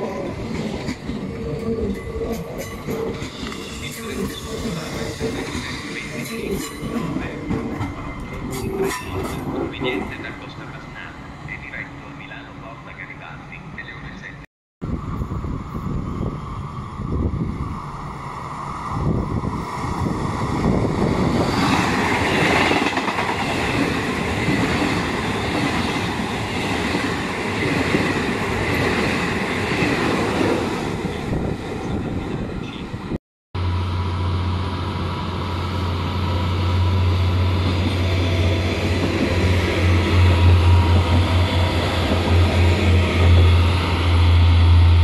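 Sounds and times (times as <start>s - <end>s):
low train hum: 0.0s - 45.0s
train wheels clattering on rails: 21.4s - 30.0s.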